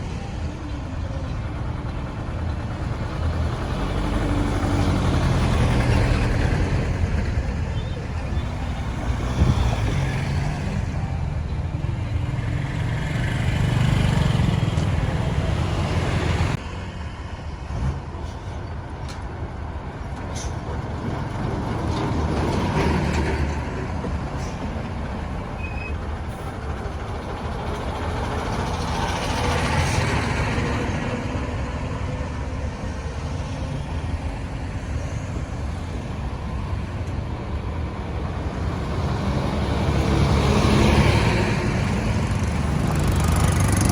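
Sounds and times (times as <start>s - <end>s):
road traffic rumble: 0.0s - 43.9s
vehicles passing close by: 0.0s - 43.9s.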